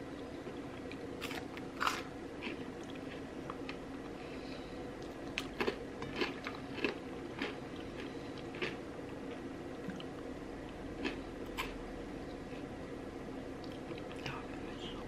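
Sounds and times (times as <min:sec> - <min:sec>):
faint steady hum: 0:00.0 - 0:15.0
chewing crunchy food: 0:00.4 - 0:04.2, 0:04.9 - 0:12.8.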